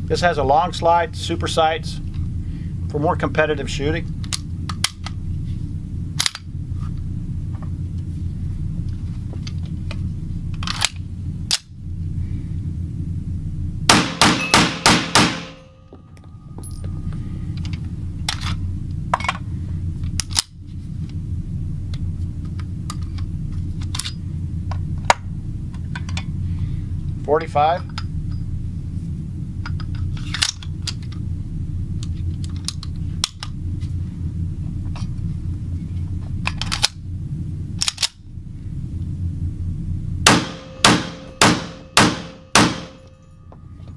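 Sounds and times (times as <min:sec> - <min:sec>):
steady low hum: 0:00.0 - 0:43.9
pistol shots: 0:13.9 - 0:15.6, 0:40.3 - 0:43.1.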